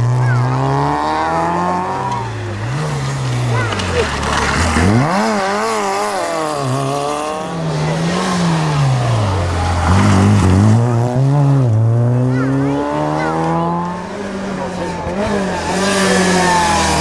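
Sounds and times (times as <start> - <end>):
rally car engines revving: 0.0 - 17.0.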